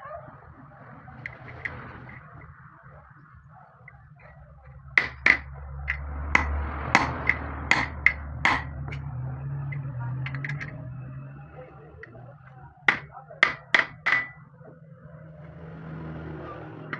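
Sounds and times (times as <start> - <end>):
hammer striking metal: 5.0 - 10.9, 12.9 - 14.4.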